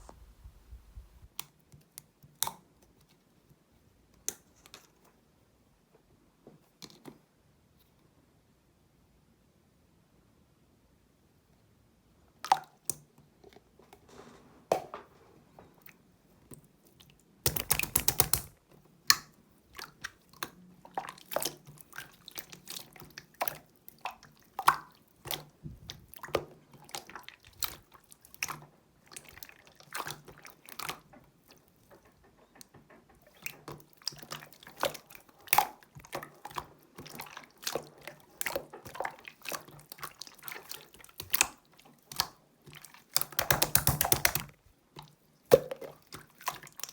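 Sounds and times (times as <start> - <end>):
slime wet clicks and pops: 17.5 - 18.5, 43.2 - 44.5.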